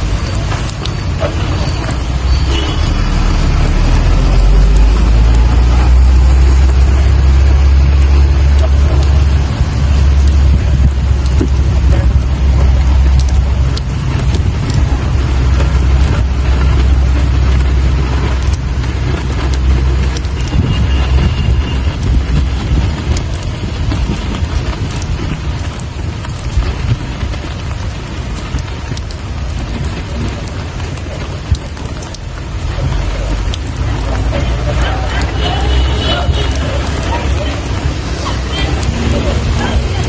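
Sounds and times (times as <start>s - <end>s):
deep low rumble: 0.0s - 40.0s
rain falling: 0.0s - 40.0s.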